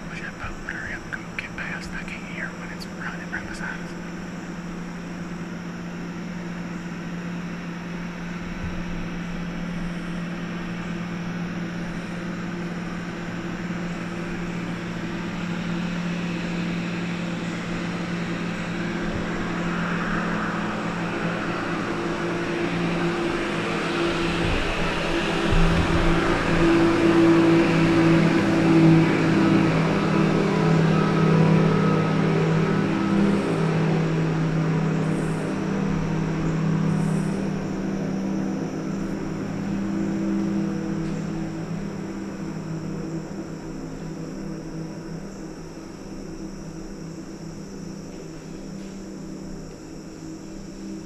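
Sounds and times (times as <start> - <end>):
engine hum: 0.0 - 51.0.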